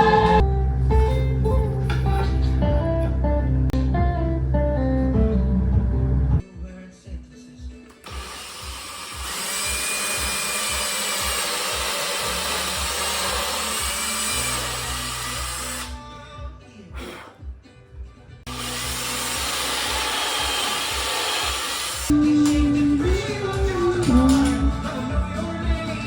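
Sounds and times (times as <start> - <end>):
background music with beat: 3.8 - 8.0, 22.1 - 26.0
cordless drill running: 7.9 - 16.0, 18.5 - 22.1.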